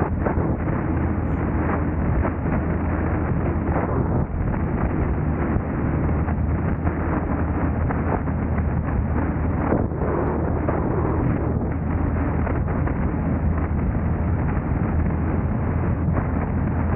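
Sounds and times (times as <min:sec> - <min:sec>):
car driving road noise: 0:00.0 - 0:16.9
wind buffeting microphone: 0:00.0 - 0:16.9.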